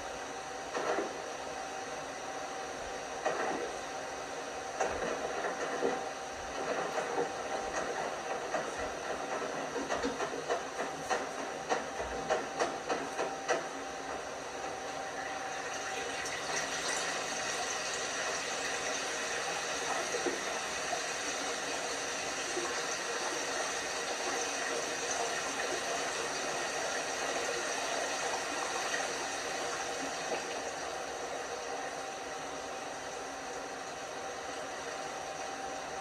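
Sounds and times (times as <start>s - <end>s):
water rushing into washing machine: 15.3s - 36.0s.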